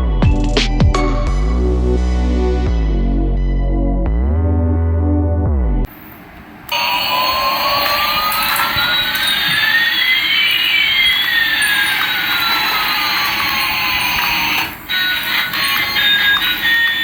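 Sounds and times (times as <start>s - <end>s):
electronic jet engine effect: 5.9s - 17.0s.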